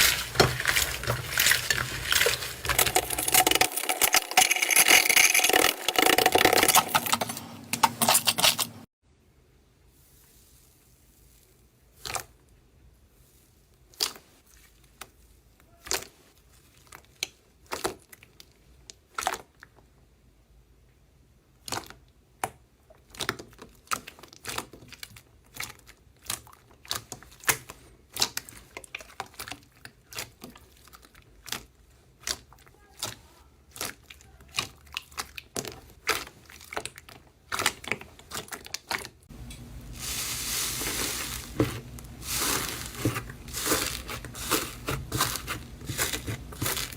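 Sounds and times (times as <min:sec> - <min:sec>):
slime crinkling: 0:00.0 - 0:08.9, 0:10.0 - 0:12.5, 0:13.1 - 0:19.8, 0:22.9 - 0:46.9.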